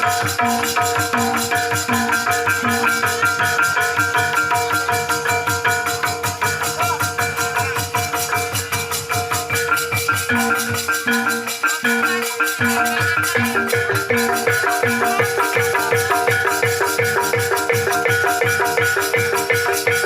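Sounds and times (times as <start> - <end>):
gamelan mallet instruments: 0.0 - 20.0
steady drum beats: 0.0 - 20.0.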